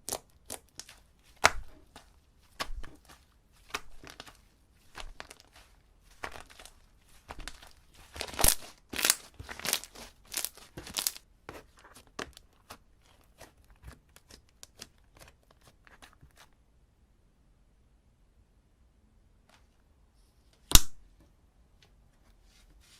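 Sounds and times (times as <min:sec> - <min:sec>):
slime squeezed with sticky crackles: 0:00.0 - 0:16.4.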